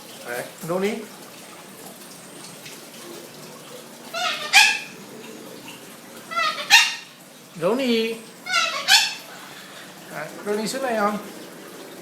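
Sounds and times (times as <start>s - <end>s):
cockatoo shrill calls: 4.1s - 4.9s, 6.3s - 7.1s, 8.4s - 9.5s.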